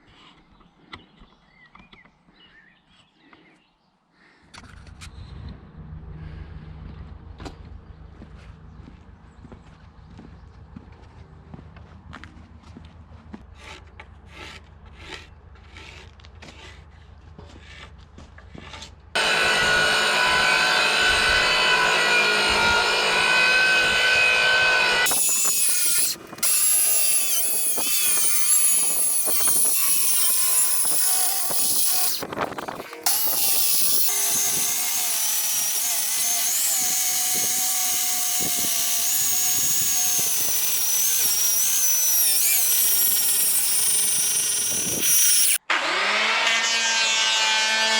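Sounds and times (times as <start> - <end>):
power tool whining: 19.2 - 47.9.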